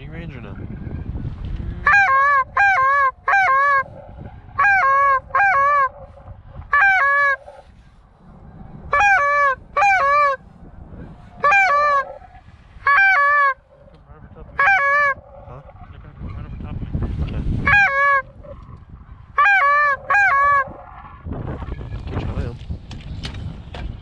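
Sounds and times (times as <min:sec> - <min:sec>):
goose honking: 0:01.8 - 0:08.0, 0:08.9 - 0:10.4, 0:11.3 - 0:15.8, 0:17.6 - 0:18.6, 0:19.4 - 0:20.9.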